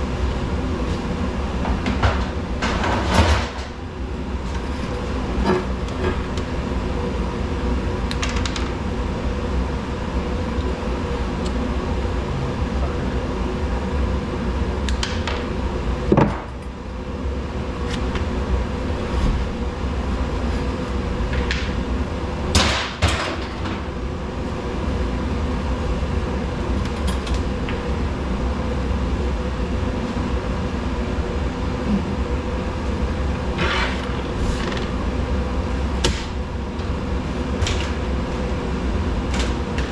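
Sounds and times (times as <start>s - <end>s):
low machine hum: 0.0s - 39.9s
knocks and clanks: 1.6s - 3.8s.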